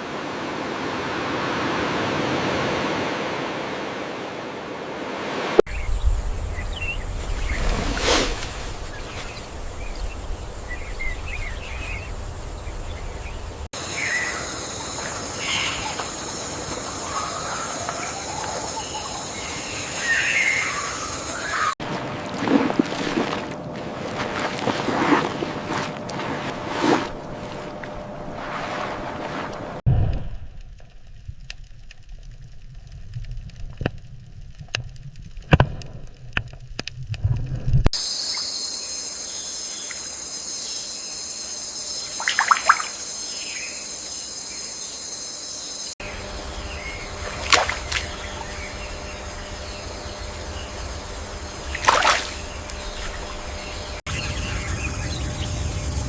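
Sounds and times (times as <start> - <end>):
sharp drips and clicks: 30.6 - 37.4
water trickling: 51.1 - 54.0.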